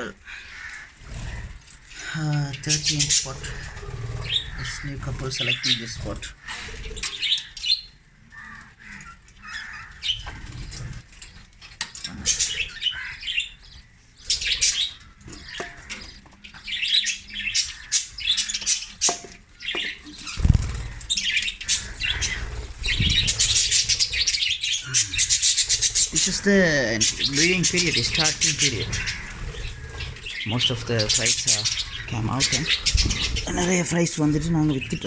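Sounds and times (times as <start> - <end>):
budgerigars chattering and chirping: 0.0 - 35.0
low fluttering rumbles: 20.3 - 35.0.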